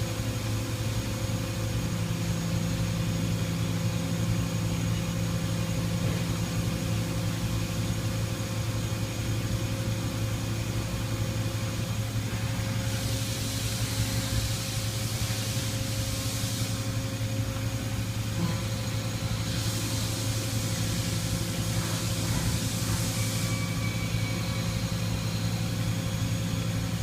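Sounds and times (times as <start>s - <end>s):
milling machine hum: 0.0s - 27.0s
hiss: 12.2s - 26.4s.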